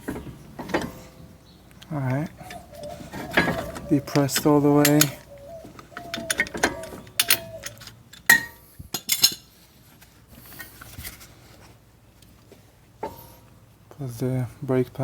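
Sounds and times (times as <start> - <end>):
metal tools clicking and knocking: 0.0 - 1.2, 1.8 - 9.5
short squeaks: 0.0 - 8.0.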